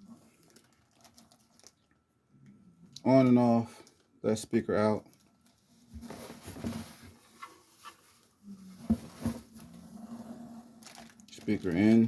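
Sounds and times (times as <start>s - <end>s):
soft rustling: 5.4s - 11.1s.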